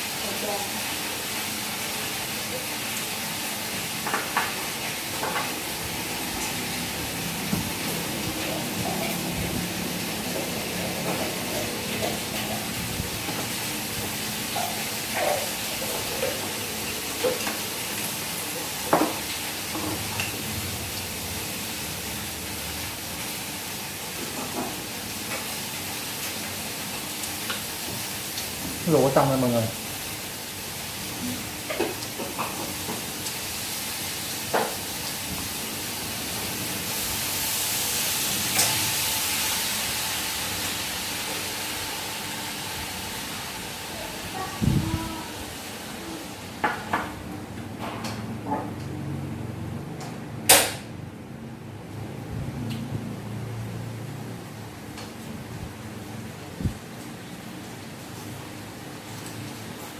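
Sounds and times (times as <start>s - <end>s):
food sizzling in a hot pan: 0.0s - 47.2s.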